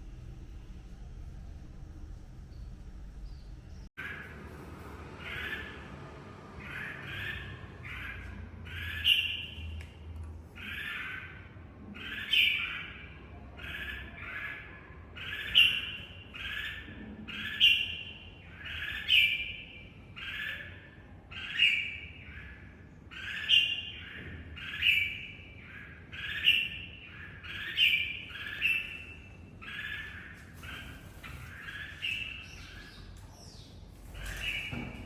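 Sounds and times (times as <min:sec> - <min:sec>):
bird squawking calls: 0:20.2 - 0:35.0.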